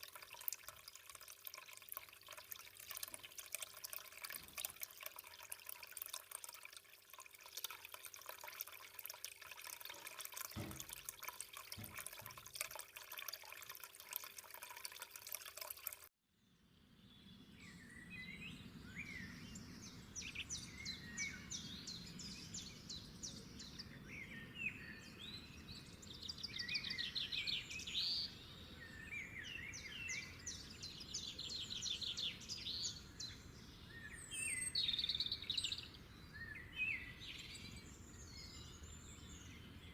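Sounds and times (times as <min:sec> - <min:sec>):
water trickling and dripping: 0:00.0 - 0:16.1.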